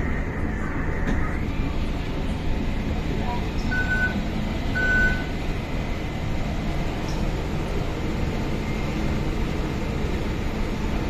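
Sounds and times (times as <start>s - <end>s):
train car rumble and hum: 0.0s - 11.0s
door-closing warning beeps: 3.6s - 4.2s, 4.8s - 5.3s.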